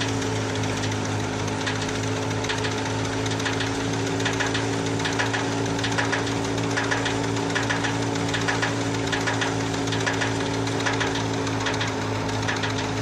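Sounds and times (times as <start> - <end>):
threshing machine engine hum: 0.0 - 13.0
rattling clicks: 1.6 - 13.0.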